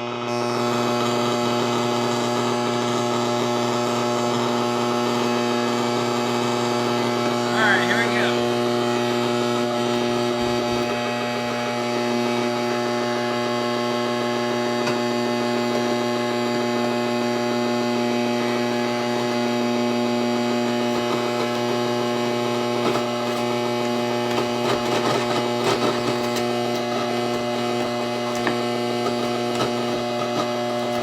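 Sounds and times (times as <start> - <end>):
electrical hum: 0.0 - 31.0.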